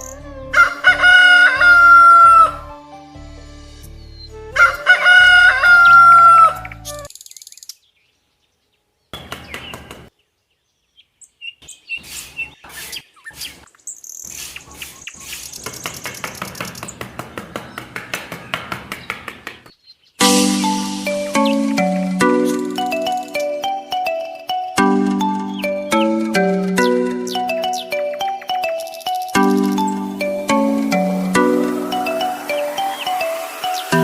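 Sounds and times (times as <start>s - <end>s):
rooster crowing: 4.6s - 6.6s, 31.5s - 34.0s.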